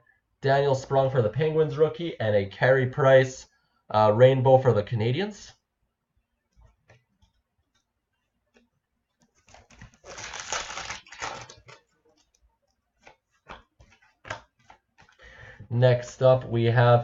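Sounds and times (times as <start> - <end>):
packaging rustling: 9.2 - 15.2.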